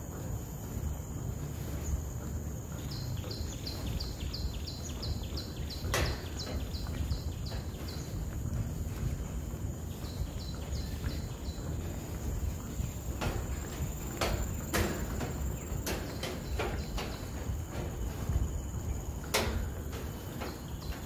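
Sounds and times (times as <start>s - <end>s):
bird high chirps: 2.8s - 9.2s, 9.8s - 18.9s.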